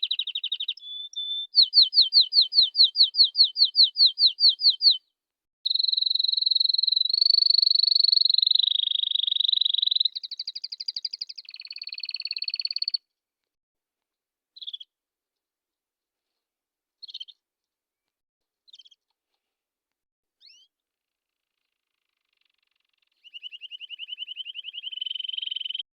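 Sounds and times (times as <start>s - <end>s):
canary singing fast trill: 0.0s - 5.0s, 5.7s - 13.0s, 14.6s - 14.9s, 17.0s - 17.4s, 21.6s - 25.9s
short bird chirps: 0.0s - 5.0s, 5.7s - 13.0s, 14.6s - 14.9s, 17.0s - 17.4s, 18.7s - 19.0s, 20.4s - 20.8s, 21.6s - 25.9s.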